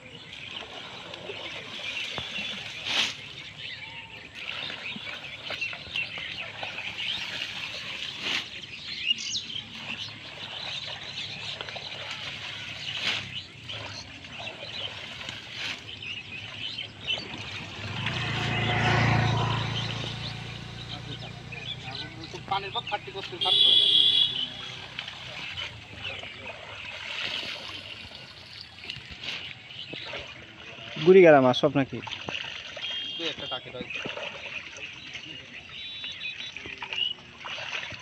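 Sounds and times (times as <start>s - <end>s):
small birds chirping: 0.0s - 31.9s, 32.8s - 38.0s
vehicle engine passing by: 16.8s - 23.4s.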